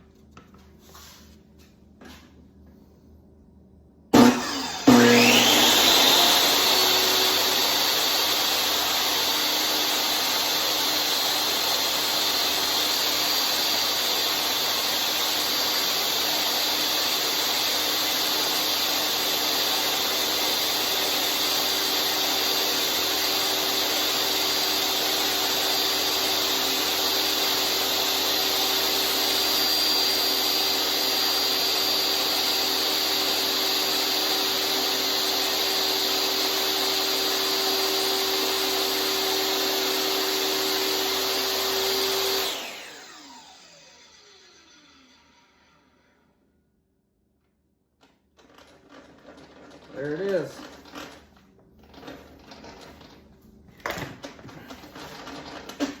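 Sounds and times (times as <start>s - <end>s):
table saw motor whine: 4.1s - 46.4s.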